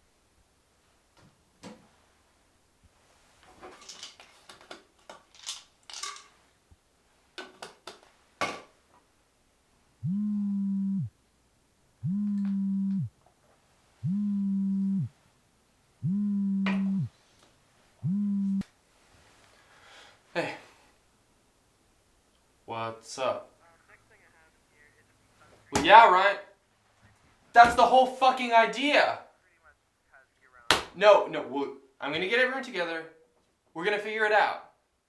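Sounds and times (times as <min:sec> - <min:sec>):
clicks and handling rustles: 0:03.4 - 0:06.5
phone buzzing on vibrate: 0:10.0 - 0:11.1, 0:12.0 - 0:13.1, 0:14.0 - 0:15.1, 0:16.0 - 0:17.1, 0:18.0 - 0:18.6.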